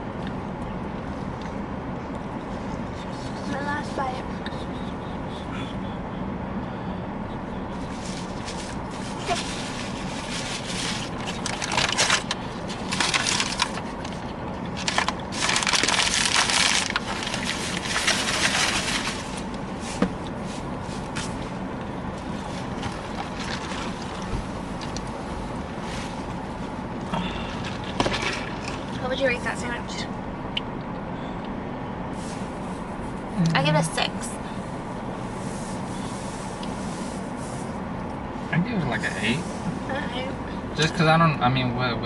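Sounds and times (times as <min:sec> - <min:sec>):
steady low hum: 0:00.0 - 0:42.0
food wrapper crinkling: 0:08.1 - 0:19.5.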